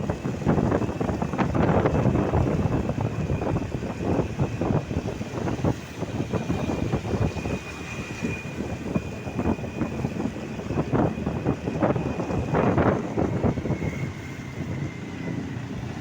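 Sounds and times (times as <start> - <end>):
city traffic rumble: 0.0 - 16.0
wind buffeting microphone: 0.0 - 16.0.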